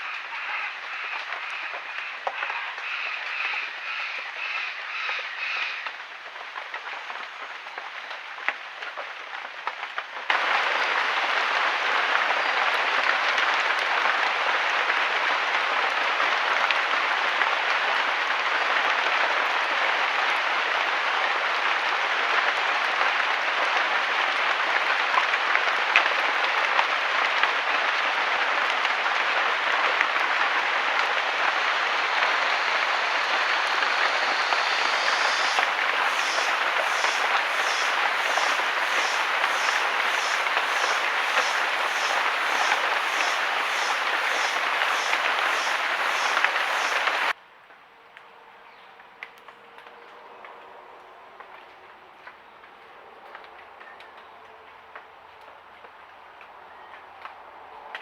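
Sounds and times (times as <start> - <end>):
heavy rain hissing: 10.3 - 47.4
rhythmic chirps: 33.6 - 47.3.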